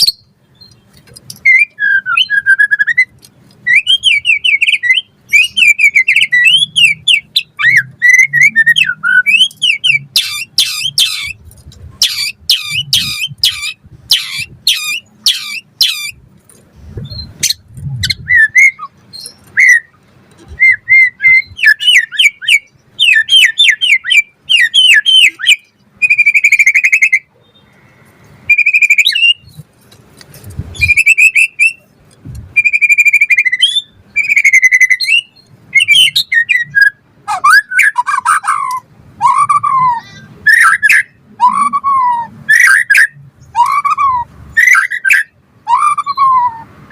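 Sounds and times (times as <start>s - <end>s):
bird singing whistled phrases: 1.4s - 11.4s, 17.1s - 27.7s, 28.5s - 29.5s, 30.8s - 31.9s, 32.6s - 46.7s.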